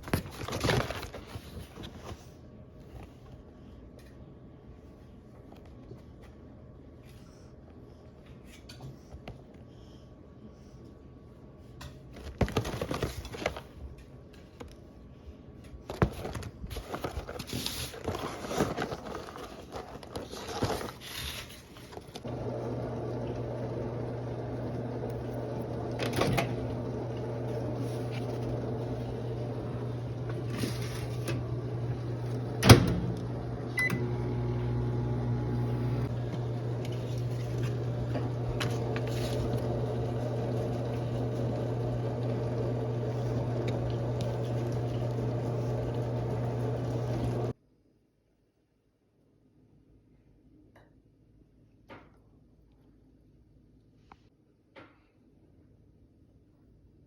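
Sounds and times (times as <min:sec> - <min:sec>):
microwave oven humming: 0:22.2 - 0:47.6.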